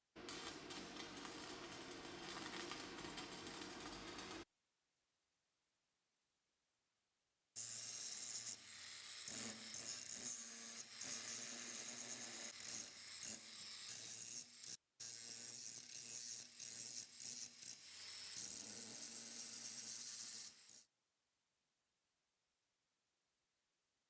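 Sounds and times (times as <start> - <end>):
metal rasping and scraping: 0.2 - 4.4.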